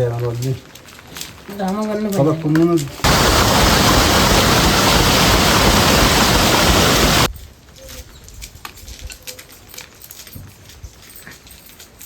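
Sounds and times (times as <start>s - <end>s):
loud steady rushing noise: 3.1s - 7.3s.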